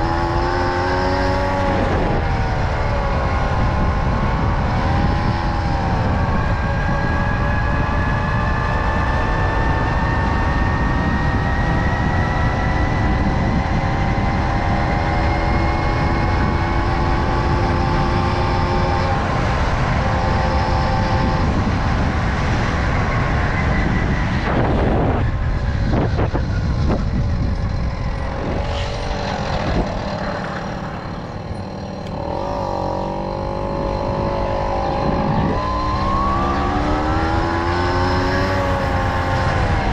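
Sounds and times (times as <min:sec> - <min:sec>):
wind rumble on microphone: 0:00.0 - 0:39.9
moped two-stroke engine running: 0:27.2 - 0:35.6.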